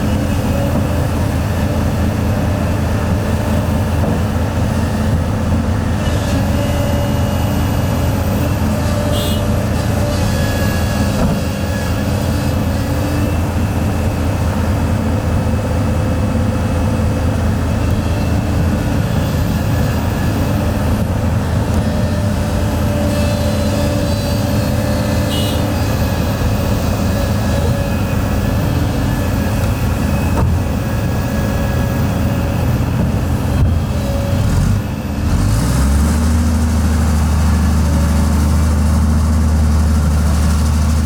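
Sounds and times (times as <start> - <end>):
diesel engine rumbling: 0.0 - 41.0.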